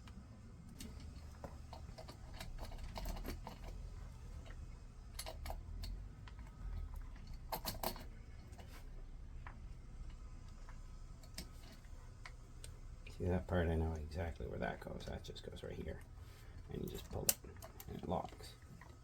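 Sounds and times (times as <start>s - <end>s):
small parts clicking and tapping: 0.0s - 8.7s, 16.6s - 19.0s.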